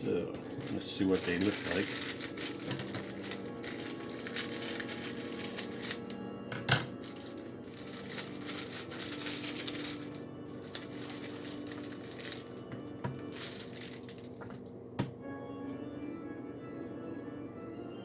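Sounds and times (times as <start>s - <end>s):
wrapper crinkling and tearing: 0.4s - 6.2s, 6.8s - 14.7s.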